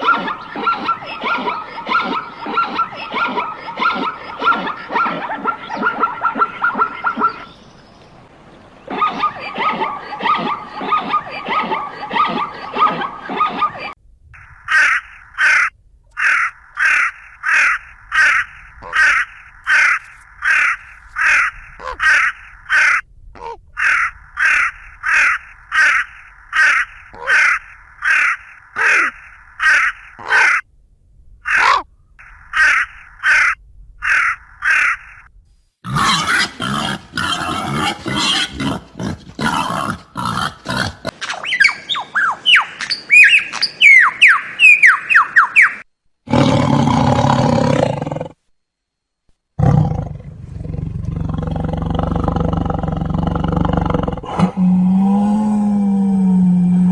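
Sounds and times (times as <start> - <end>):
animal sound: 0.0 - 7.6, 8.9 - 30.6, 31.5 - 42.4, 49.6 - 56.9
harsh bird calls: 0.0 - 30.6, 31.5 - 35.3, 39.4 - 45.9.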